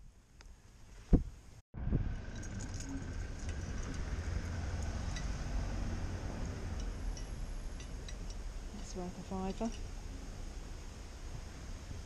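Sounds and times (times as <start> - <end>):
steady low rumble: 1.5 - 12.0
light clinks and rattles: 2.2 - 5.4.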